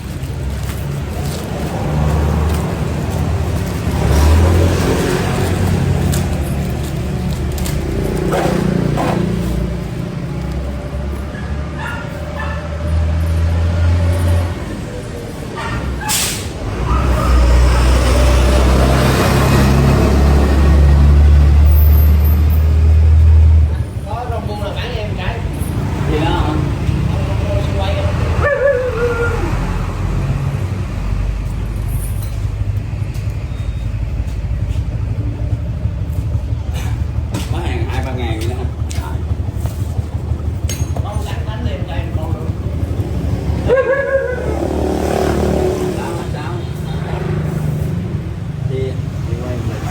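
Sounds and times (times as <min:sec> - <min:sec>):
vehicle engine rumbling: 0:00.0 - 0:49.9
short hiss of air: 0:16.0 - 0:16.6
engine running with flutter: 0:32.0 - 0:46.5.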